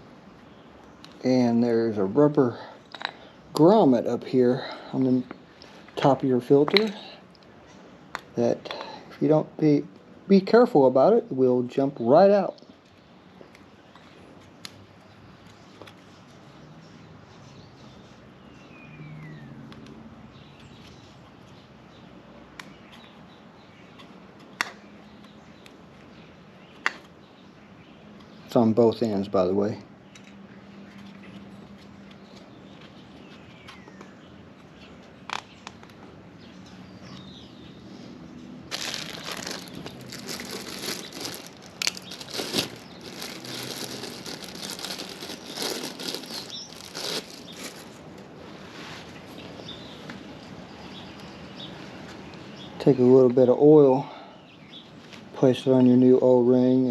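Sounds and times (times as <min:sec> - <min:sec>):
faint steady background noise: 0:00.0 - 0:56.9
crinkling and rustling by hand: 0:30.1 - 0:51.3.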